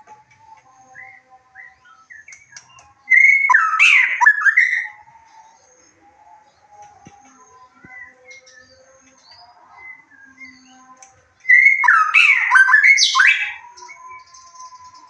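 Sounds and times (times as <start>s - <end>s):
faint bird chirps: 0.0s - 15.0s
songbird singing whistles: 0.2s - 15.0s.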